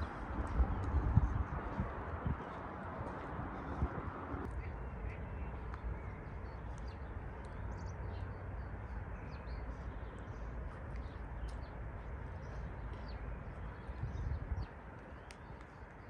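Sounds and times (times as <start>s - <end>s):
low outdoor rumble: 0.0s - 15.3s
small birds chirping: 2.4s - 16.0s.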